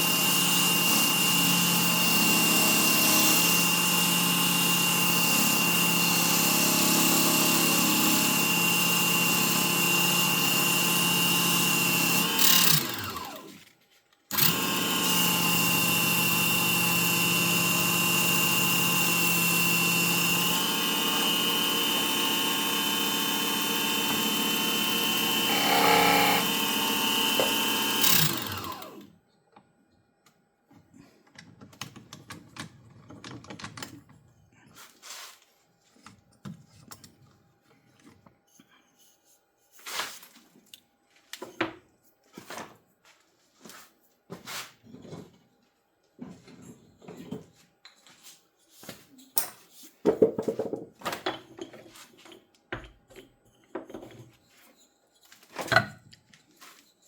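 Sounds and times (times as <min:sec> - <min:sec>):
wood lathe motor running: 0:00.0 - 0:13.5, 0:14.3 - 0:29.0.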